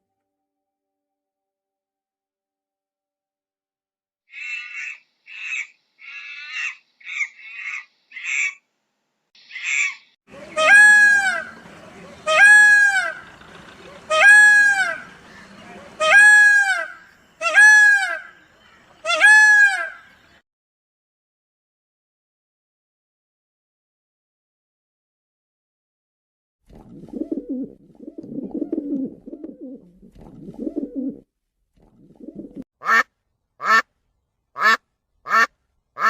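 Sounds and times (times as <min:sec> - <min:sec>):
short harsh bird calls: 0:04.3 - 0:08.6, 0:09.4 - 0:20.4
loud clear bird calls: 0:04.3 - 0:08.7, 0:09.4 - 0:20.4.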